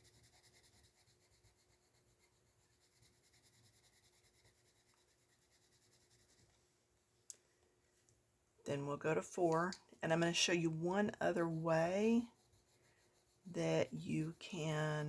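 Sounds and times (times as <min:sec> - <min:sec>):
pencil scratching on paper: 0:00.0 - 0:06.6, 0:10.1 - 0:15.0.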